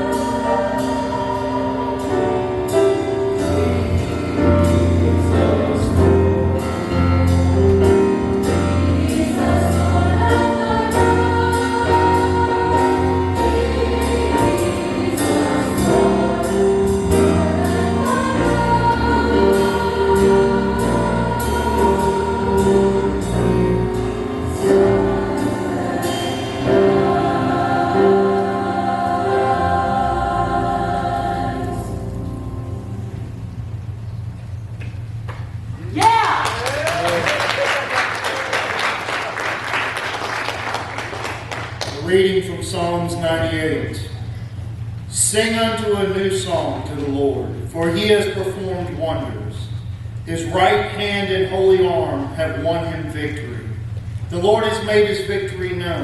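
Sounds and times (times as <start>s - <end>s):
choir singing jazz-style: 0.0s - 33.2s.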